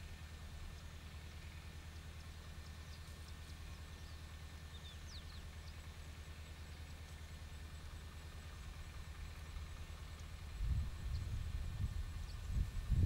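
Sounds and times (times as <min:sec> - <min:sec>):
steady low hum: 0:00.0 - 0:13.0
bird chirps: 0:00.7 - 0:07.2.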